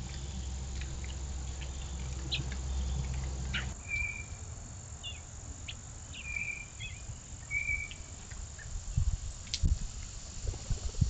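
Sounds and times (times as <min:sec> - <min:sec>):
birds chirping: 0:00.0 - 0:09.0
bird whistled notes: 0:03.5 - 0:04.4, 0:06.2 - 0:08.1.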